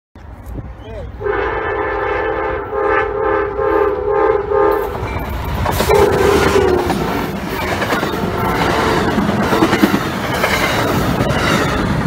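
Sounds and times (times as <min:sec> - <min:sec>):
train engine and wheel rush: 0:00.2 - 0:12.0
locomotive air horn: 0:01.2 - 0:04.9, 0:05.9 - 0:07.2
wheels clacking on rails: 0:04.4 - 0:12.0.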